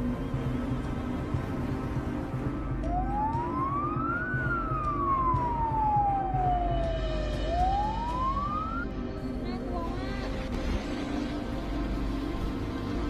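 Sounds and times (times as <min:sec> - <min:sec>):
emergency siren wailing: 0:02.4 - 0:09.1.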